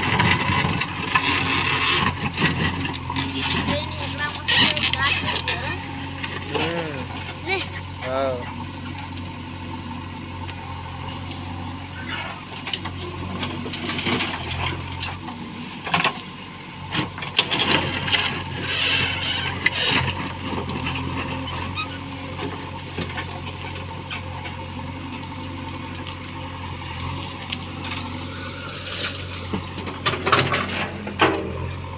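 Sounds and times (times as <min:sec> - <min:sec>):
heavy diesel engine running: 0:00.0 - 0:31.9
clanking and knocks: 0:29.5 - 0:31.7.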